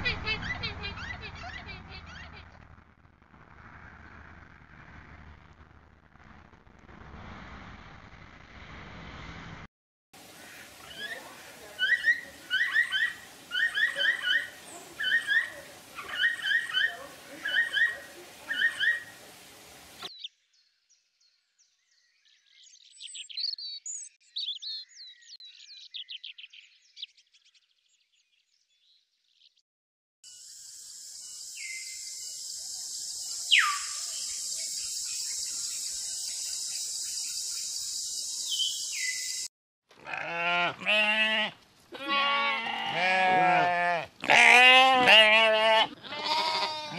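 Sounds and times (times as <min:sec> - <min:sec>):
steady high hiss: 0:10.2 - 0:20.1
short chirping calls: 0:30.4 - 0:39.5
sheep bleating: 0:40.0 - 0:46.9.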